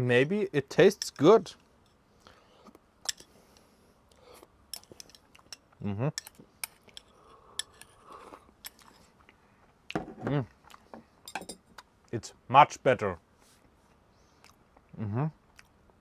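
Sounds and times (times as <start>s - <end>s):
short vocal sound: 14.9s - 15.4s.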